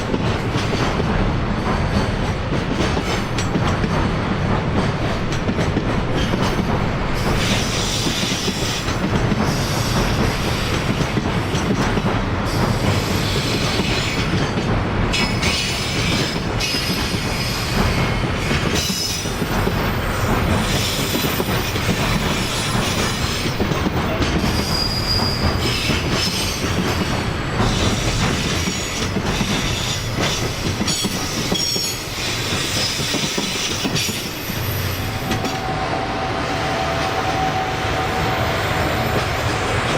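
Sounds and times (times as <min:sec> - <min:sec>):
train wheels rumbling on rails: 0:00.0 - 0:39.9
high-pitched wheel squeals: 0:24.6 - 0:26.0.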